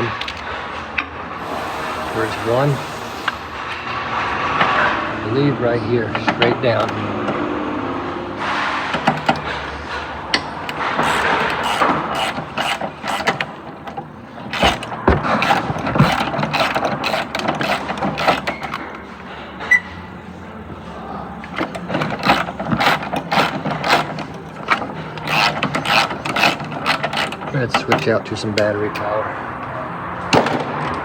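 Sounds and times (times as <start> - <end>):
ratchet wrench clicking: 10.7 - 13.5, 14.5 - 18.9, 21.6 - 28.1.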